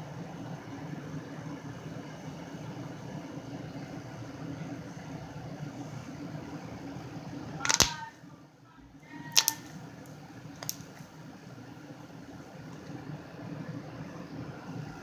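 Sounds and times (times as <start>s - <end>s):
sharp clicks: 7.6s - 8.0s.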